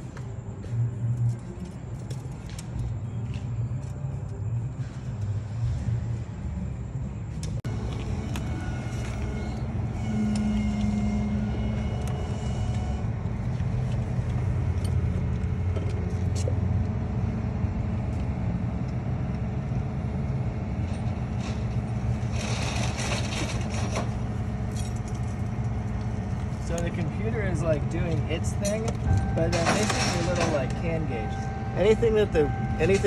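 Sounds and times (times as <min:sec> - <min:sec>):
car engine idling: 0:07.6 - 0:22.6, 0:23.3 - 0:33.0.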